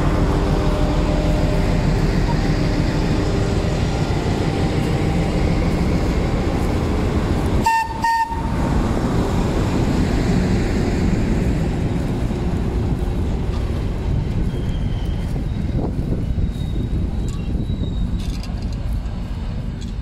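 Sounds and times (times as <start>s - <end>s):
train rumbling past: 0.0s - 20.0s
train horn toots: 7.6s - 8.6s.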